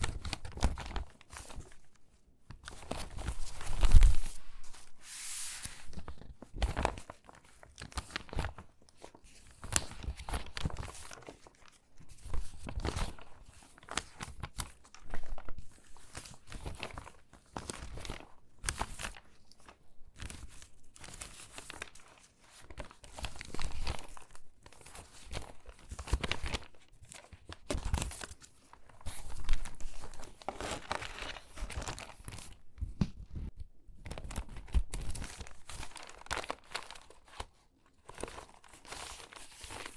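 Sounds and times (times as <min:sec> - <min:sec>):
magazine pages crinkling: 0:00.0 - 0:01.9, 0:02.5 - 0:33.2, 0:34.0 - 0:39.9.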